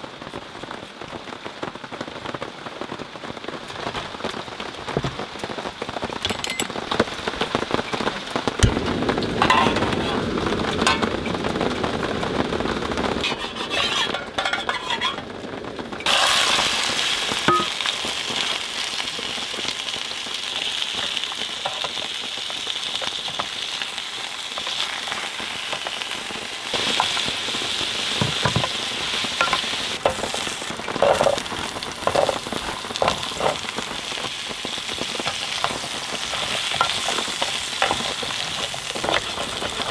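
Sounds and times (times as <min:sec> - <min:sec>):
food sizzling in a pan: 0:05.9 - 0:15.4, 0:16.0 - 0:39.9
stirring and utensil clicks: 0:35.2 - 0:39.9.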